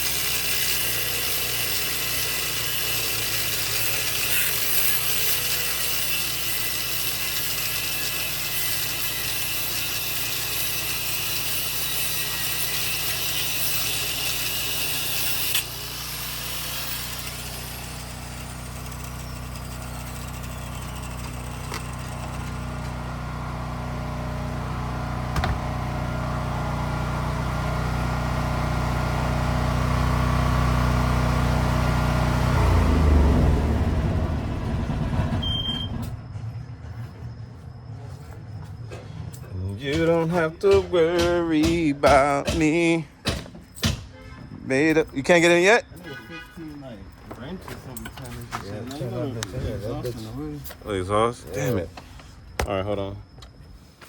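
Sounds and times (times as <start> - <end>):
vehicle engine humming: 18.0 - 43.1.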